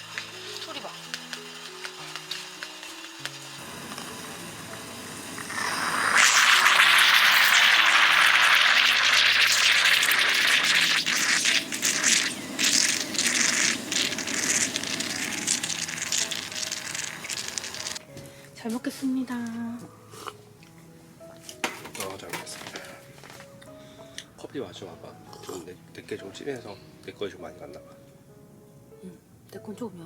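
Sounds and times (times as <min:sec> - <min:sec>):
meat sizzling on a griddle: 0:00.0 - 0:18.1
soft background music: 0:00.0 - 0:30.0.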